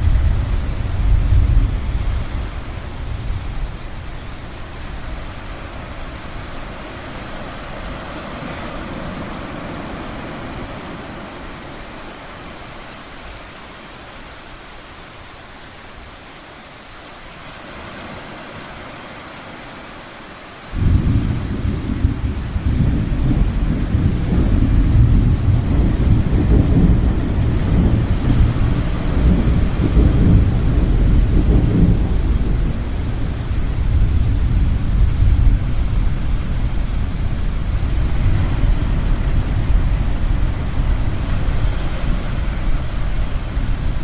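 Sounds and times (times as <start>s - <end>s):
low thunder rumble: 0.0s - 11.4s, 20.8s - 44.0s
ocean waves washing: 0.0s - 44.0s.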